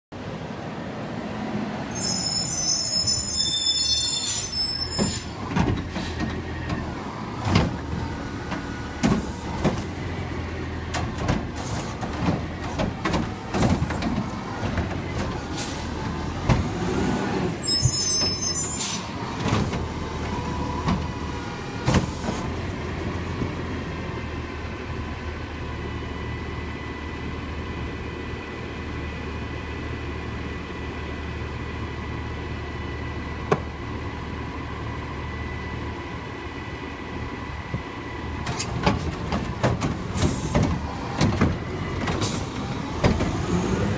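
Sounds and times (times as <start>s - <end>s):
high squeal: 1.8s - 5.4s, 17.6s - 19.1s
diesel engine running: 4.6s - 43.9s
clanks and knocks: 38.5s - 42.3s.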